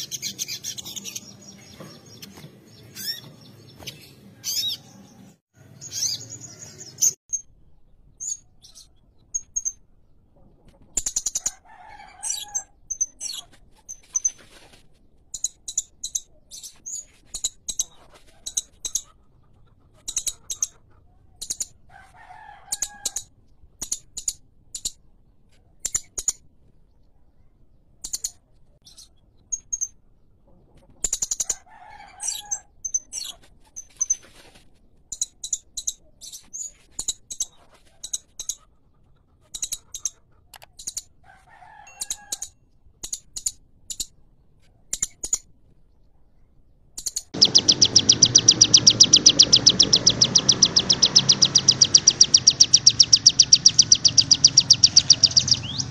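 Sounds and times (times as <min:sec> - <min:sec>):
songbird chirps: 0:42.0 - 0:55.9
fast high bird trill: 0:47.4 - 0:55.9
lower bird call: 0:47.4 - 0:55.9.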